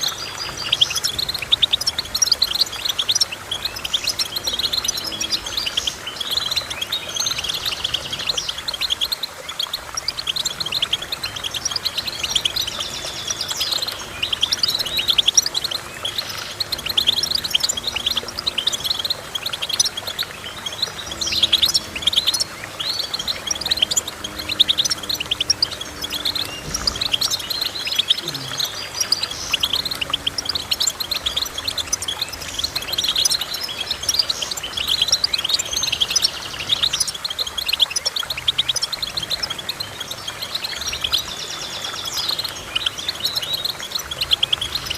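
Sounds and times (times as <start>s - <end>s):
bird twittering and trilling: 0.0s - 44.9s.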